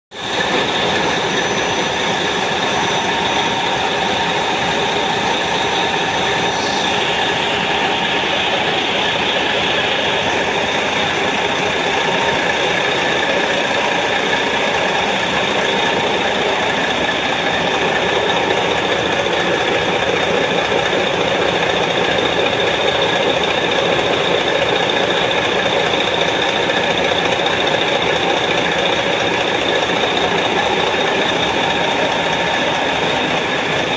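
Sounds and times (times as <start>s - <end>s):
marine diesel engine running: 0.1s - 33.9s
faint high whine: 0.2s - 20.0s.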